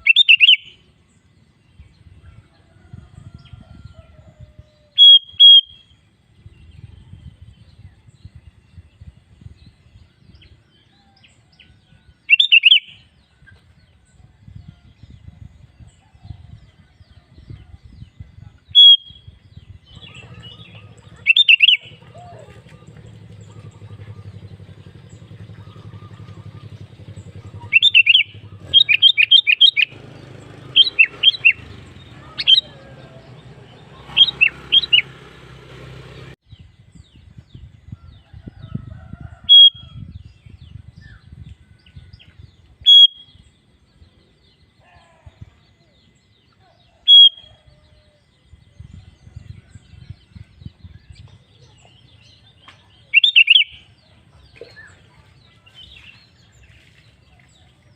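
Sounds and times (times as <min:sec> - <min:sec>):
bird singing: 0:00.0 - 0:57.9
low hum: 0:17.6 - 0:29.1.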